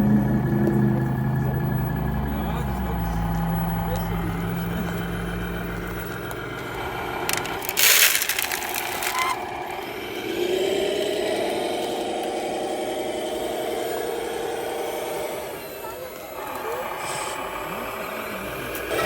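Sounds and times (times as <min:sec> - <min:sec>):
model truck engine: 0:00.0 - 0:19.0.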